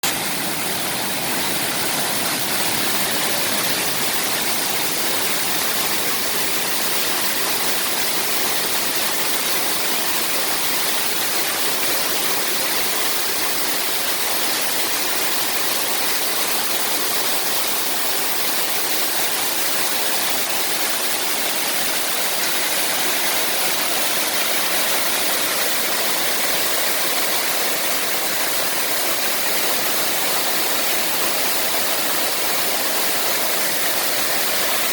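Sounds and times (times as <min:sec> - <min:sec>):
waterfall rushing: 0:00.0 - 0:10.3, 0:19.4 - 0:34.9.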